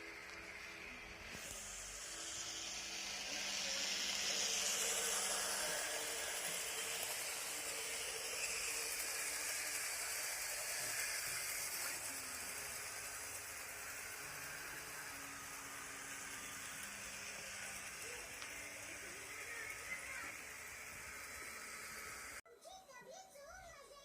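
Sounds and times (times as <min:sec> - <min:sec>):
high whine sliding down: 0:00.0 - 0:22.4
model train running on track: 0:00.0 - 0:22.4.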